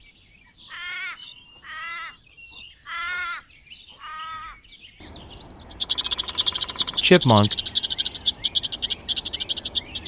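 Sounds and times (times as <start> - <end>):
kangaroo calling: 0.7 - 10.0
faint high chirps: 5.0 - 10.0.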